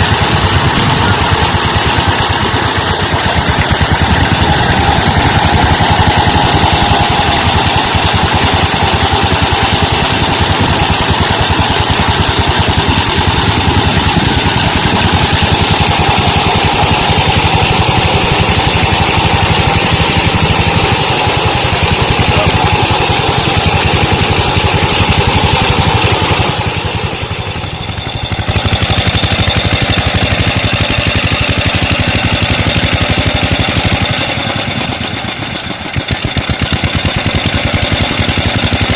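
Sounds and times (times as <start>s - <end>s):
diesel engine running steadily: 0.0s - 38.9s.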